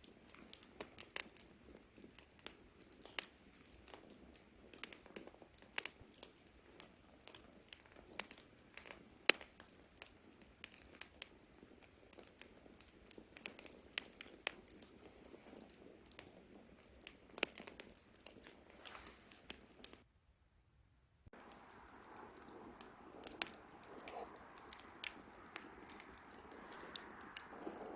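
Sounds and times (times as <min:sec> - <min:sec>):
campfire crackling and popping: 0:00.0 - 0:20.0, 0:21.3 - 0:27.9
soft steady hiss: 0:00.0 - 0:27.9.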